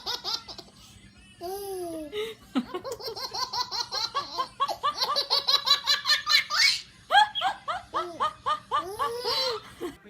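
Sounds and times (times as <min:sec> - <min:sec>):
baby laughing: 0:00.0 - 0:00.7, 0:01.4 - 0:09.8.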